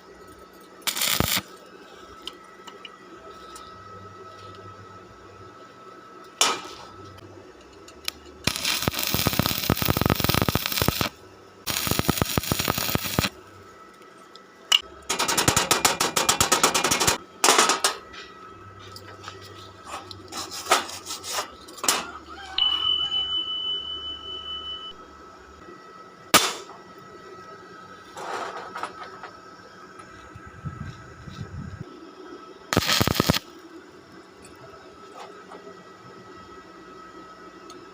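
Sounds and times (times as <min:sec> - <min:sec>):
welding arc crackling: 0:00.8 - 0:01.5, 0:08.0 - 0:13.4, 0:32.7 - 0:33.5
high steady tone: 0:22.4 - 0:25.6.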